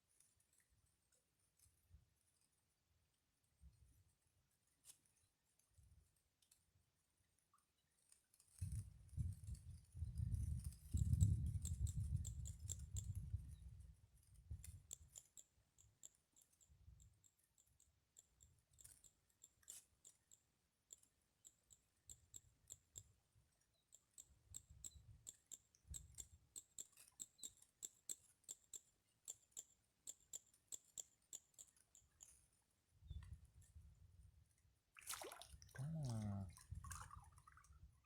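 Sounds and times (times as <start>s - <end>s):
faint small clicks: 4.8s - 6.8s, 7.4s - 13.6s, 14.2s - 33.8s.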